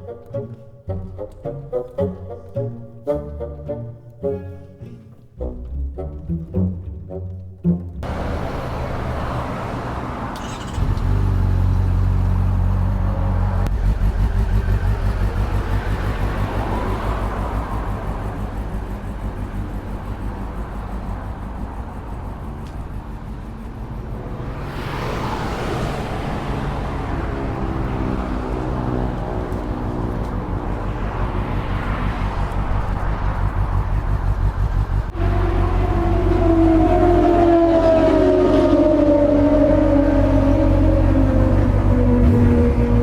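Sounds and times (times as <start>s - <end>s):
motorcycle engine running: 10.4s - 24.6s, 29.1s - 37.4s
rush of noise: 23.3s - 27.8s.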